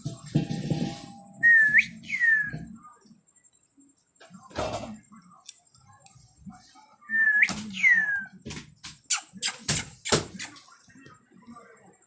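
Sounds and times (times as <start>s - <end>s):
two-part whistle: 1.4s - 2.6s.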